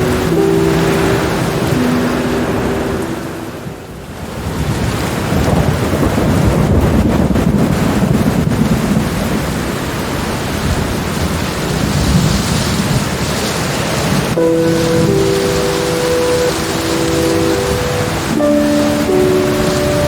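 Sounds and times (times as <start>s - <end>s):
steady rain: 0.0s - 20.0s
rolling thunder: 4.2s - 20.0s.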